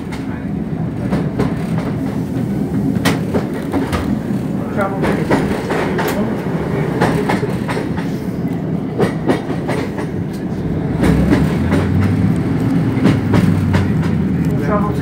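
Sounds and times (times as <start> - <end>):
train wheels and engine rumble: 0.0 - 15.0
wheels clickety-clack on rail joints: 0.0 - 15.0.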